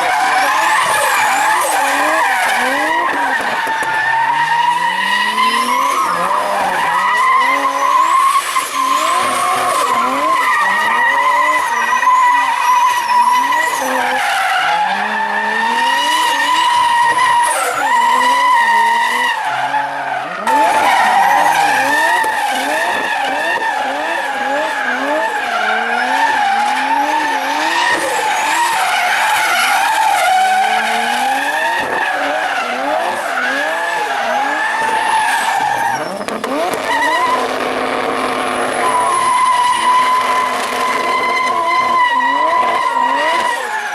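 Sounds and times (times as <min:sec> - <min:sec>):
tyres squealing: 0:00.0 - 0:37.5
car engine revving: 0:00.0 - 0:43.8.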